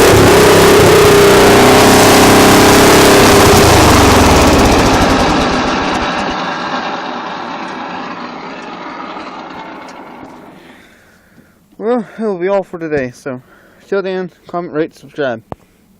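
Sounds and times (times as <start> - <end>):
engine running: 0.0 - 11.7.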